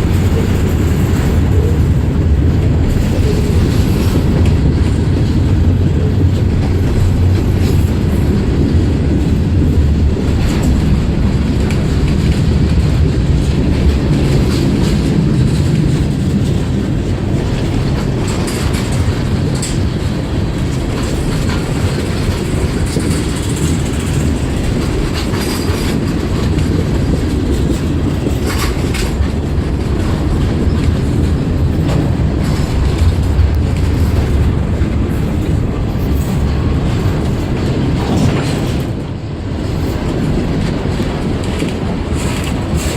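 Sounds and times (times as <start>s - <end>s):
freight train rumbling: 0.0s - 42.9s
wheels clacking over rail joints: 0.0s - 42.9s.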